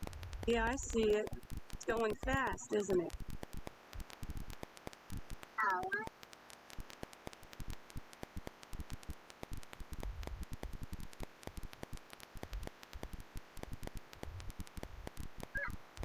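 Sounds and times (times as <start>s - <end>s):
low rumble: 0.0s - 0.9s
crackling static with clicks: 0.0s - 16.0s.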